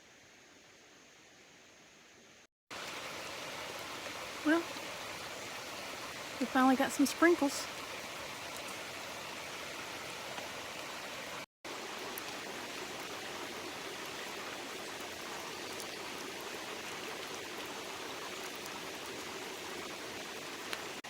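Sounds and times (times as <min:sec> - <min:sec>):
mountain stream rushing: 0:02.7 - 0:21.0
faint raindrop ticks: 0:08.5 - 0:08.8, 0:12.1 - 0:12.4, 0:15.4 - 0:16.0, 0:20.2 - 0:21.0.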